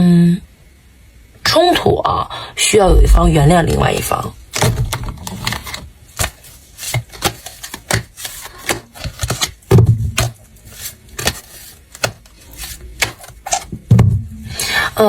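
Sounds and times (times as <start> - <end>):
heavier knocks: 2.9 - 4.0.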